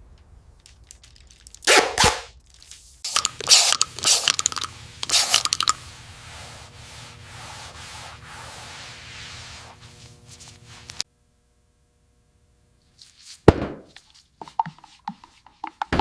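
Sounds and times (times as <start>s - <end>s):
steady noise with faint hum: 2.3s - 14.6s.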